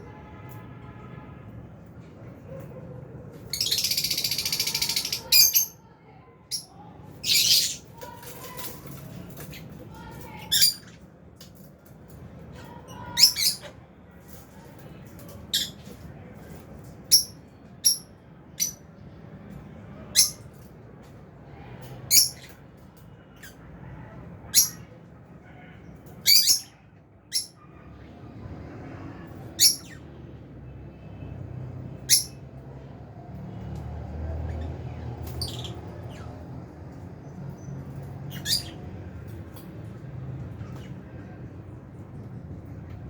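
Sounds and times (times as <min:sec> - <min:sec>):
lovebirds chirping shrilly: 0:03.5 - 0:05.8, 0:07.2 - 0:08.0.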